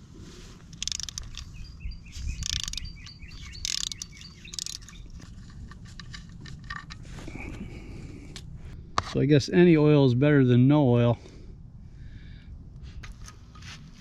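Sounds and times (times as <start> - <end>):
bursts of clicking: 0.8 - 1.6, 2.4 - 5.1
small birds chirping: 0.8 - 5.3.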